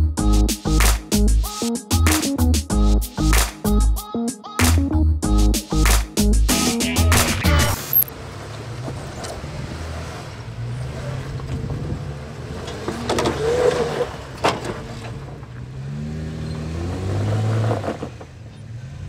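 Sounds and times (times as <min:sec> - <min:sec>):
engine running and revving: 0:07.1 - 0:19.0.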